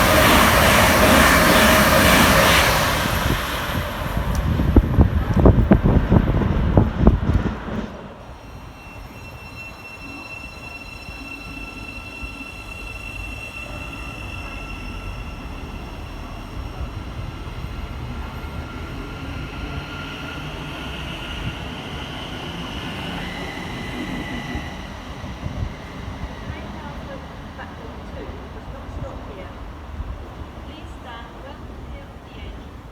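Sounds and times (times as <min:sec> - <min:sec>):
train whine and rumble: 0:00.0 - 0:32.9.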